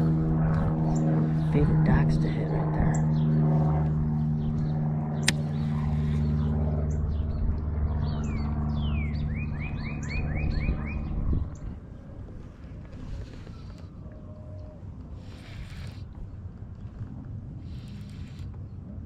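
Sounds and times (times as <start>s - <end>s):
songbird singing: 0.0s - 12.2s
low motor hum: 0.0s - 19.0s
sharp click: 5.2s - 5.6s.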